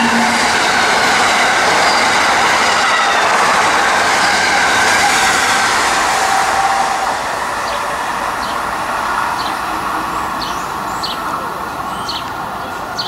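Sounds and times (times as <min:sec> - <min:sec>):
steady high tone: 0:00.0 - 0:02.5
train rolling noise: 0:00.0 - 0:13.0.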